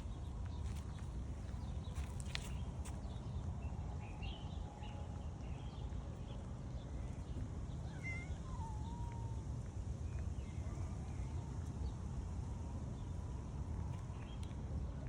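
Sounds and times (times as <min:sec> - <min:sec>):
cat meowing: 0:07.8 - 0:09.4.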